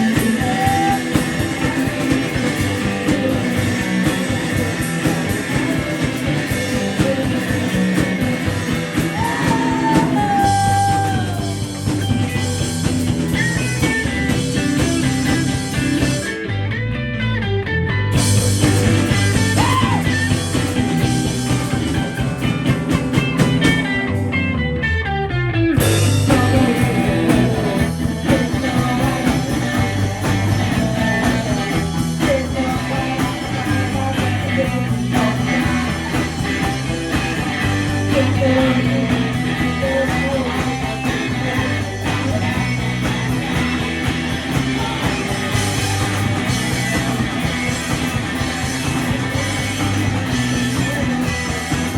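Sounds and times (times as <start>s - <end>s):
live rock band playing: 0.0s - 51.9s.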